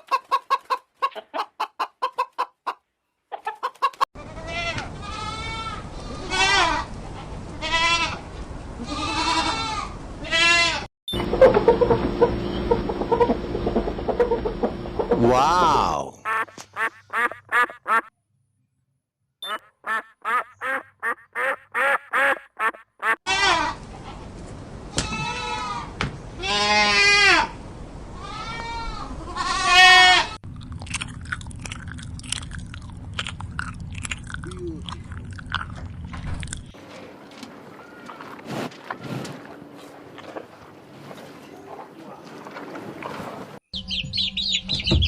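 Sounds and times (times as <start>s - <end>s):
goats bleating: 4.2s - 6.9s, 8.8s - 10.9s, 28.2s - 30.4s
duck quacking: 16.2s - 18.1s, 19.4s - 23.2s.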